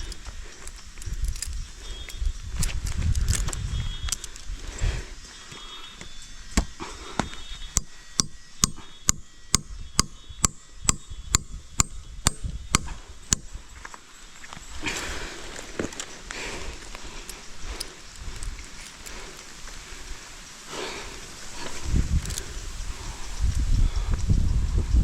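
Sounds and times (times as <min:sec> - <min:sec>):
sharp chopping strikes: 0:07.8 - 0:13.5.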